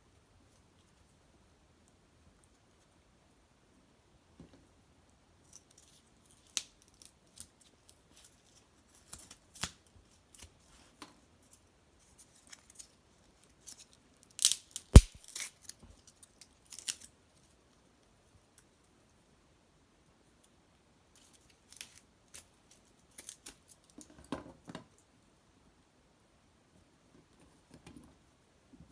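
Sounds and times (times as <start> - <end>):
wood fire crackling and popping: 14.4 - 15.2.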